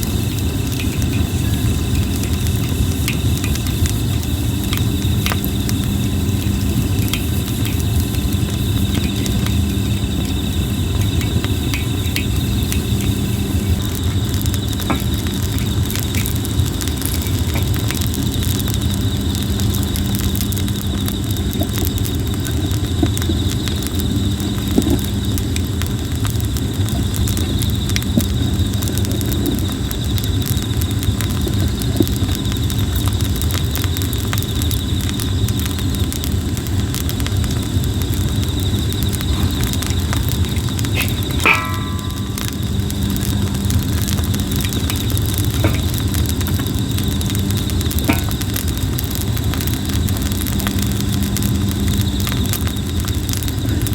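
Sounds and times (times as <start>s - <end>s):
campfire crackling and popping: 0.0s - 53.9s
insects chirring: 0.0s - 53.9s
low rumble: 38.8s - 51.7s.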